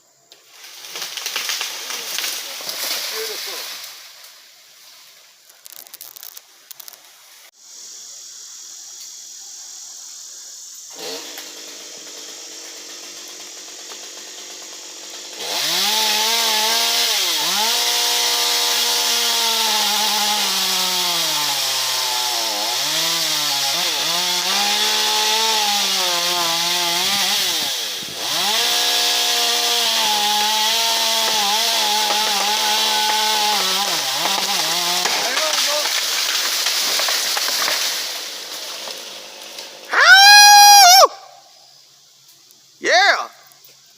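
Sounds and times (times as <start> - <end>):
chainsaw cutting wood: 0.5 - 4.0, 10.9 - 41.2.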